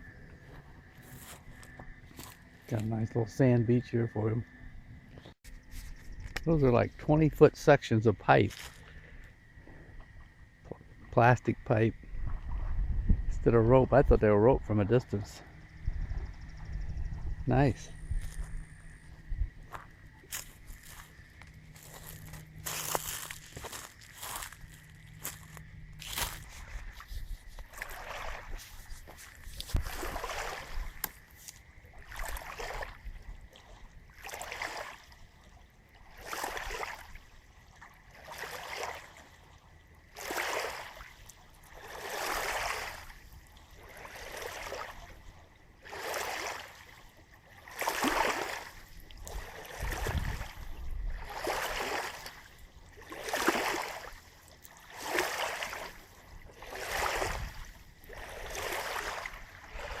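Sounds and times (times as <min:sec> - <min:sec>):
lake waves lapping on shore: 0:17.5 - 1:00.0.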